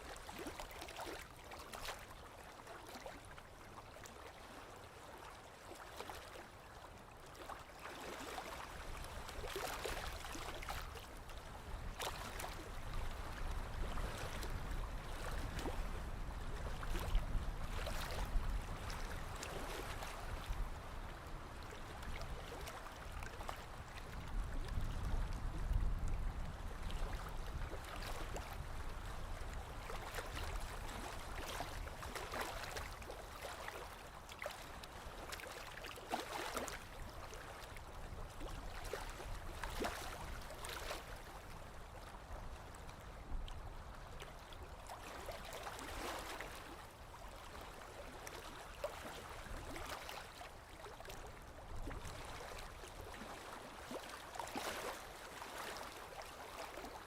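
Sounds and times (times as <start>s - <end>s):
waves lapping against shore: 0.0s - 57.0s.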